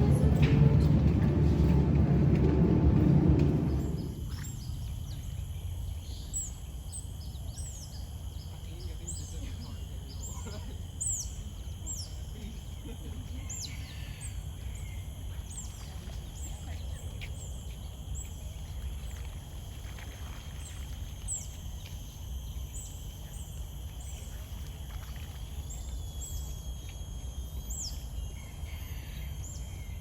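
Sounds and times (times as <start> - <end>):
steady low rumble: 0.0 - 6.4
small birds chirping: 4.4 - 19.2.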